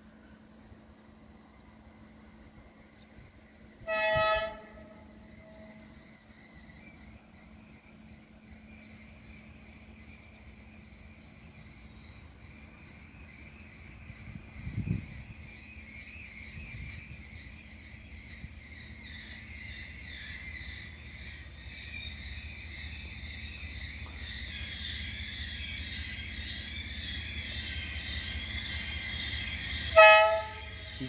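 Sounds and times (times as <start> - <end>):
locomotive rumble: 0.0 - 31.0
locomotive horn blast: 3.8 - 5.1, 29.9 - 31.0
insects chirring: 4.4 - 31.0.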